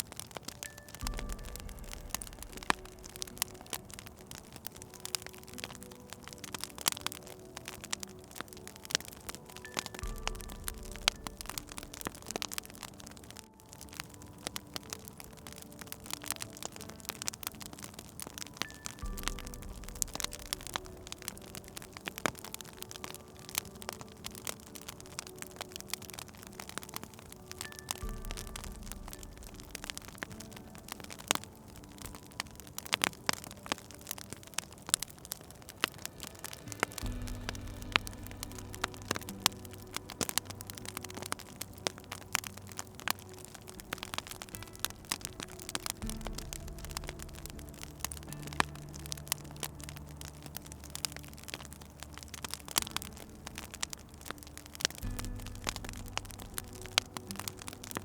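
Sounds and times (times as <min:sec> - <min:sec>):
faint low tones: 0:00.0 - 0:58.0
wood fire crackling: 0:00.0 - 0:58.0
low hum: 0:01.0 - 0:06.4, 0:35.1 - 0:58.0.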